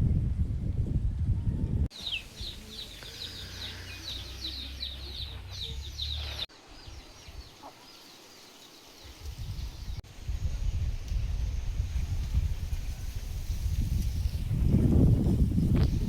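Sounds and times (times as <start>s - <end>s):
low wind-like rumble: 0.0s - 3.5s, 9.0s - 16.0s
birds chirping: 1.9s - 10.0s.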